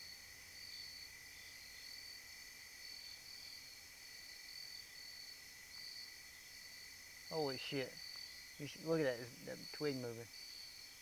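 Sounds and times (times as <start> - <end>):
insects buzzing: 0.0 - 11.0
pulsing insect trill: 2.8 - 11.0.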